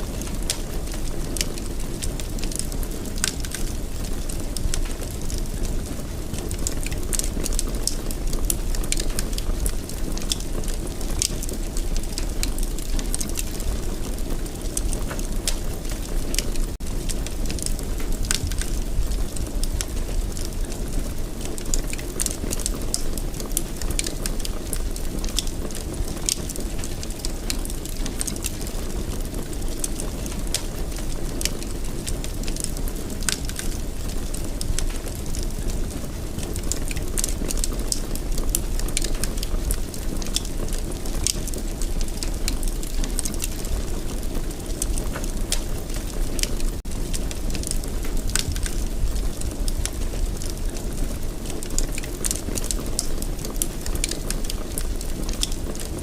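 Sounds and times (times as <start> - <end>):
fire crackling and popping: 0.0 - 56.0
low rumble of flames: 0.0 - 56.0.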